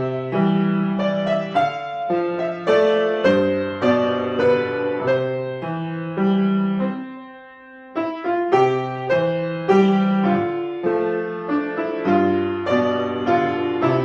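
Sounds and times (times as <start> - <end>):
solo piano playing: 0.0 - 14.0.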